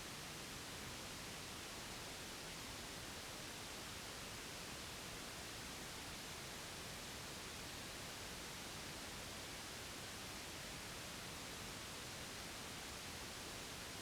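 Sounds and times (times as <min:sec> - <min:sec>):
white noise hiss: 0:00.0 - 0:14.0.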